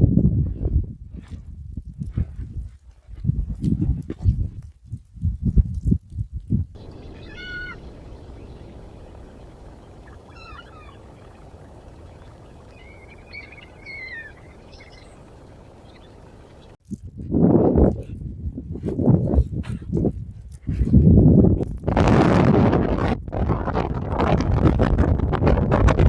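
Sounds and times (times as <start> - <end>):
animal giving short high calls: 6.8 - 16.7
wind noise: 6.8 - 26.0.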